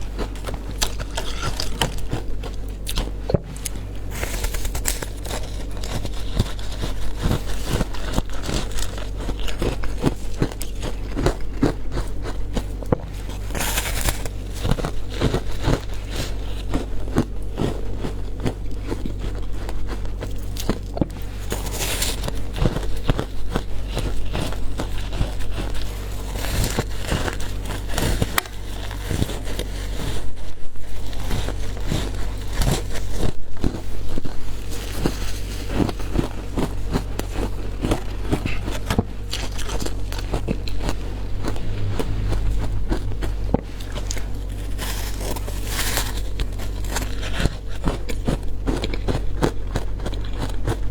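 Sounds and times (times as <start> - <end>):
steady low hum: 0.0 - 50.9
ice cracking between teeth: 0.4 - 11.1.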